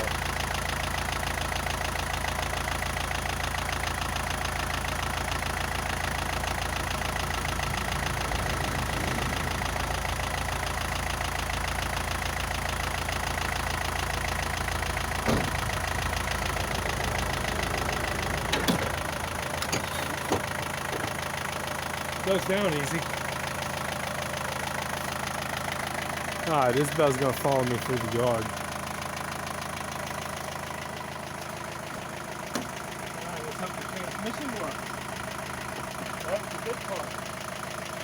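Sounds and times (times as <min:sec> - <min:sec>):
diesel truck engine idling: 0:00.0 - 0:38.0
short clunks: 0:15.2 - 0:16.0, 0:17.4 - 0:21.4, 0:32.4 - 0:32.8.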